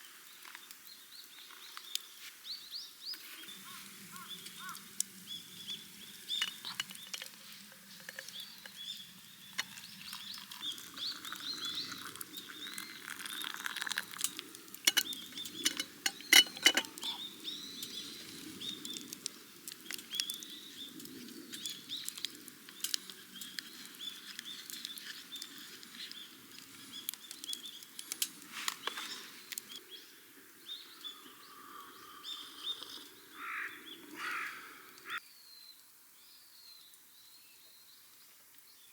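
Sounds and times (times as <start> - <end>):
small birds chirping: 0.0 - 38.9
sharp clicks and knocks: 14.9 - 17.1.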